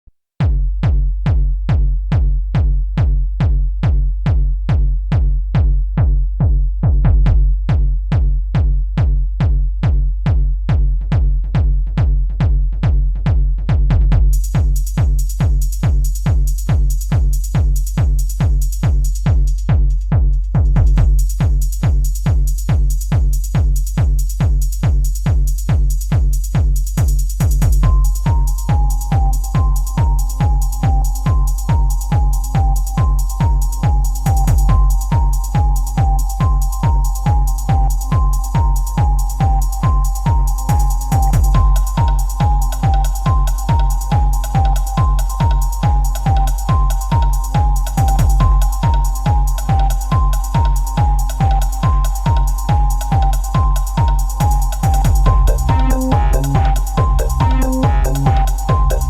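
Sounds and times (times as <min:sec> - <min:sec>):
drum machine kick: 0:00.3 - 0:59.0
hi-hat: 0:07.8 - 0:59.0
deep sustained bass: 0:55.1 - 0:59.0
held synth tone: 0:55.2 - 0:59.0.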